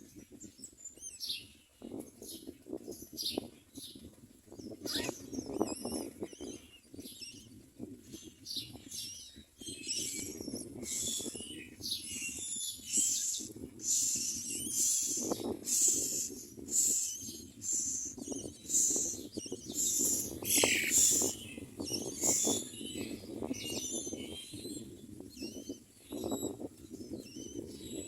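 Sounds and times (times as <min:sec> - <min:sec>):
nestlings begging calls: 0:04.8 - 0:06.6, 0:09.8 - 0:23.9.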